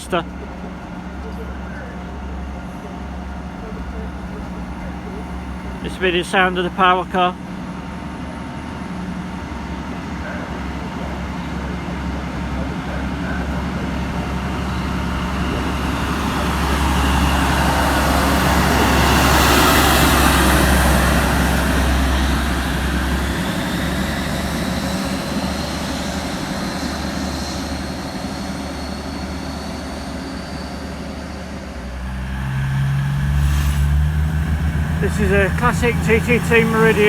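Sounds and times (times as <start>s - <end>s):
another engine: 0.0s - 9.5s, 10.2s - 28.0s, 31.2s - 37.0s
diesel train engine running: 0.0s - 37.0s
thin whine: 12.9s - 37.0s.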